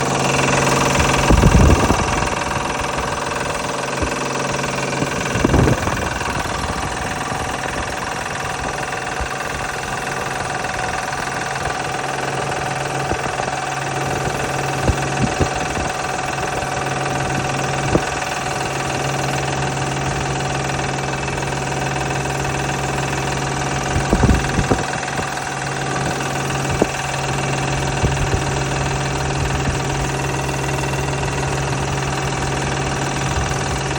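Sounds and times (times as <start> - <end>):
car engine idling: 0.0 - 33.9
sharp rattling knocks: 0.0 - 33.9.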